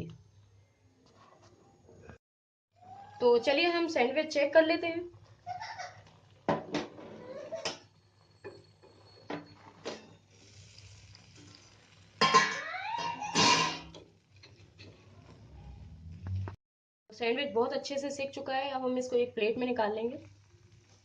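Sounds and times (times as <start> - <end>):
faint frying sizzle: 2.9 - 16.5, 18.2 - 21.0.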